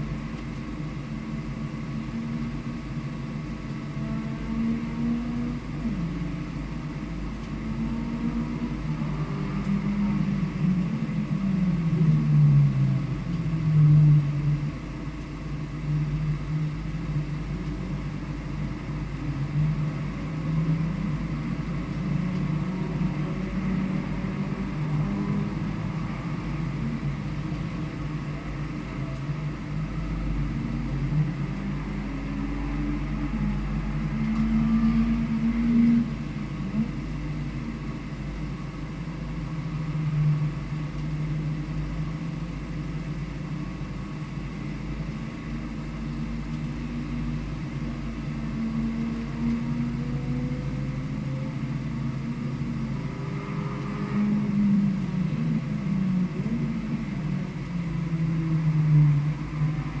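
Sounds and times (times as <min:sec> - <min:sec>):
vehicle engine revving: 0:44.7 - 1:00.0.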